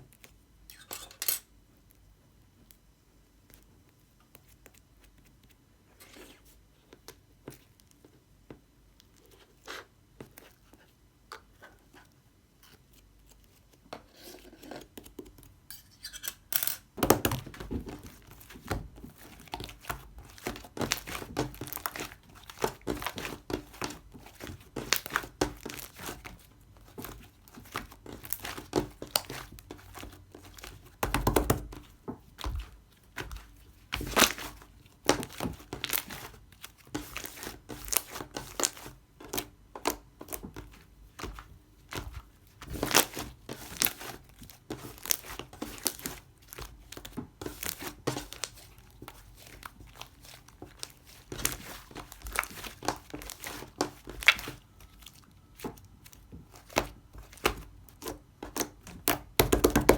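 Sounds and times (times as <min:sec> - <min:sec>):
thin material crinkling and tearing: 0:31.6 - 0:39.5, 0:40.2 - 0:59.3.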